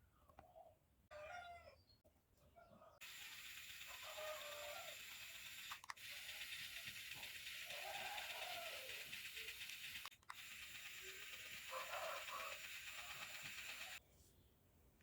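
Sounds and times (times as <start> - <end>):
small fan motor whirring: 3.0 - 14.0.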